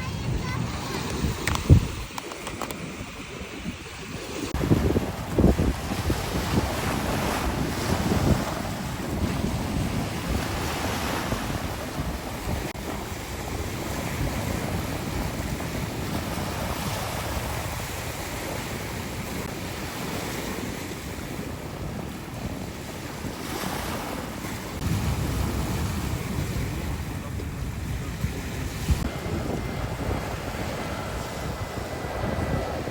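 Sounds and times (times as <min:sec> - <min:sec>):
surf rushing: 0:00.0 - 0:32.9
wind buffeting microphone: 0:00.0 - 0:32.9.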